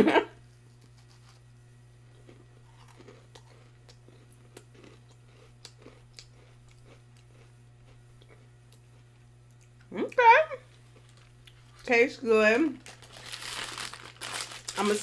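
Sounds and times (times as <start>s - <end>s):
steady low hum: 0.0s - 15.0s
chewing mouth clicks: 2.2s - 8.9s.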